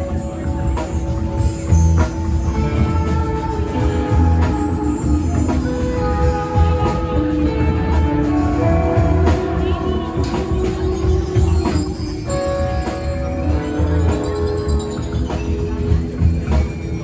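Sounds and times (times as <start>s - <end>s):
live band playing: 0.0s - 17.0s.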